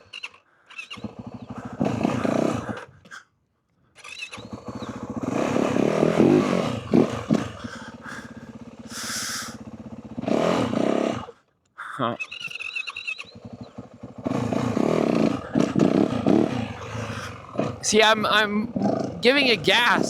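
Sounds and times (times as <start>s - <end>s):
dirt bike engine revving: 1.0s - 2.9s, 4.3s - 11.4s, 13.3s - 20.0s.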